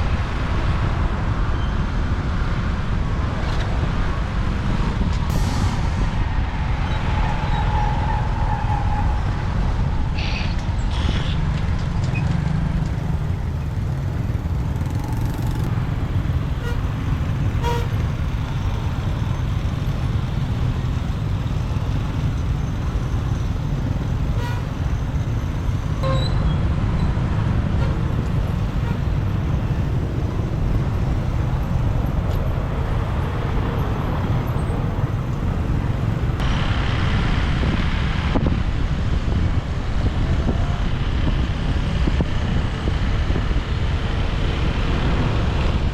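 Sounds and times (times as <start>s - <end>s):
motorbike engine and road noise: 0.0s - 45.9s
short horn toots: 16.5s - 18.2s.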